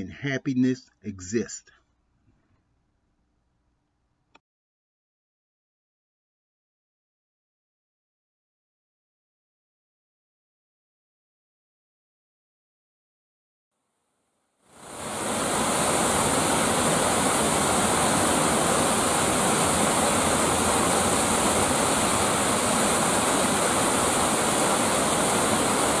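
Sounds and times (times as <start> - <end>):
waterfall rushing and splashing: 14.8 - 26.0.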